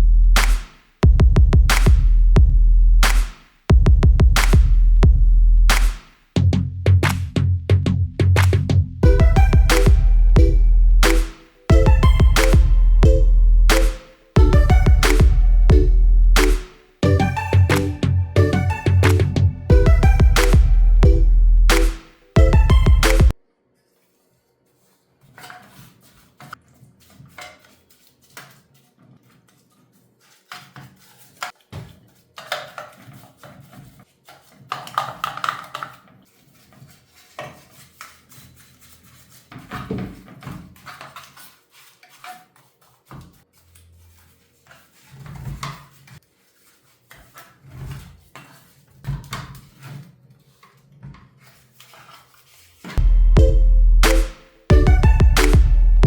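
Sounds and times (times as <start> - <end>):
loud music: 6.5 - 23.3, 53.0 - 56.0.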